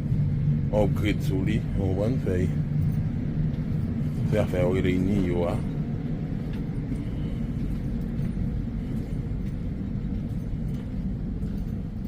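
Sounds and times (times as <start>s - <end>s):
airliner cabin rumble: 0.0s - 12.0s
faint steady hum: 0.0s - 12.0s.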